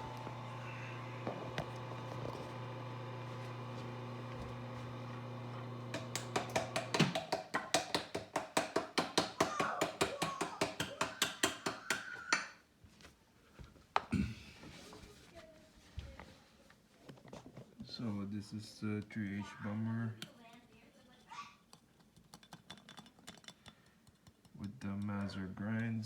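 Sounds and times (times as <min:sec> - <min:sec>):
coffee grinder motor running: 0:00.0 - 0:07.1.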